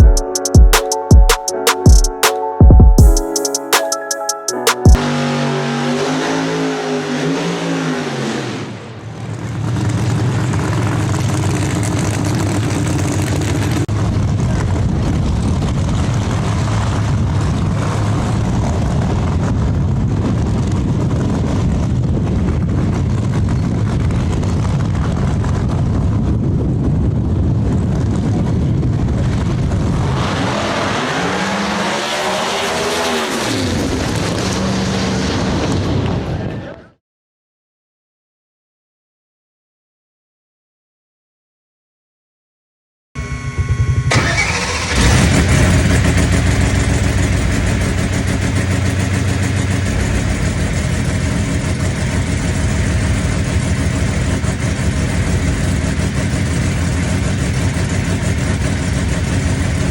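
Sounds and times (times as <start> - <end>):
race car engine revving: 5.0 - 13.8, 29.3 - 35.5, 44.0 - 53.6.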